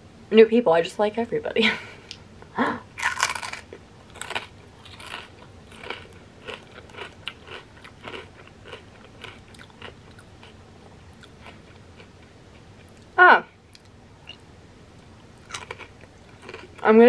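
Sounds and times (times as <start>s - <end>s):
crisp crunching chewing: 3.0s - 13.1s, 15.4s - 16.8s.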